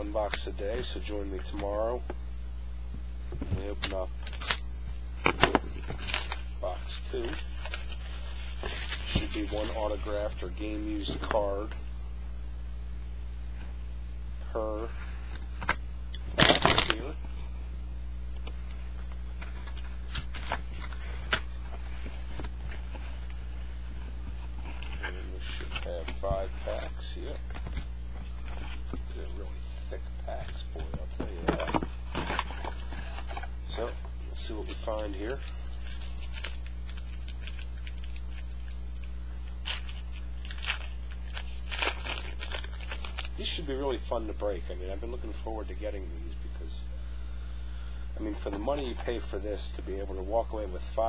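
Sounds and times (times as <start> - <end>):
low electrical hum: 0.0 - 51.0
card packs crackling and clicking: 3.5 - 4.6, 5.2 - 11.5, 15.6 - 17.1, 18.4 - 23.5, 24.4 - 29.6, 30.3 - 43.6.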